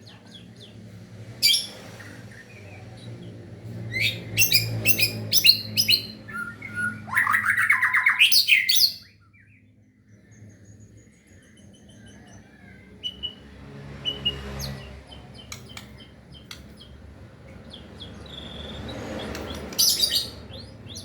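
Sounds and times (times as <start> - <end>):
bird singing whistled notes: 4.0 - 12.1
fast rattling bird trill: 14.6 - 21.0.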